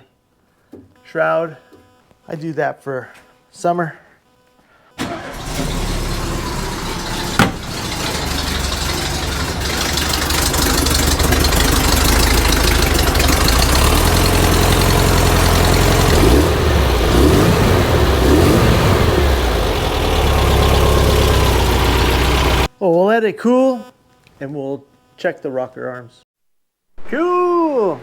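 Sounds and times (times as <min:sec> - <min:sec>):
engine idling: 0:05.0 - 0:22.7.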